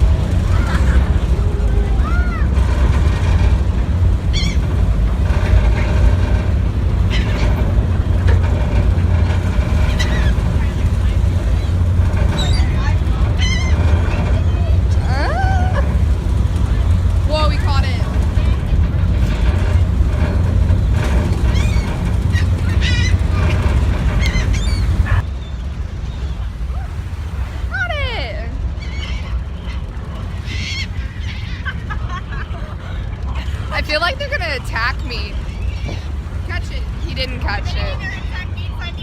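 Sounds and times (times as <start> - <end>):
gulls squawking: 0.0 - 3.4, 4.0 - 18.8, 19.6 - 27.0, 27.8 - 39.0
ferry engine rumble: 0.0 - 39.0
wind: 0.0 - 39.0
bird calling: 4.2 - 4.8, 9.7 - 14.3, 21.4 - 27.0, 28.7 - 32.2.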